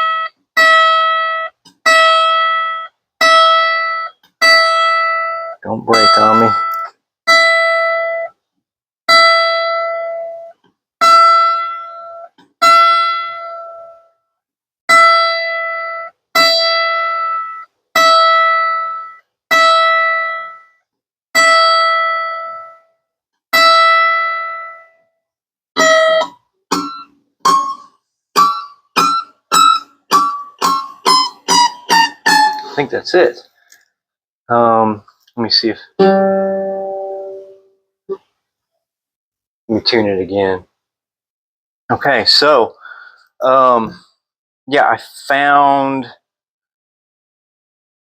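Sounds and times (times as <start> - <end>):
mandolin string plucked: 3.2 - 8.3, 25.8 - 32.9, 36.0 - 37.7.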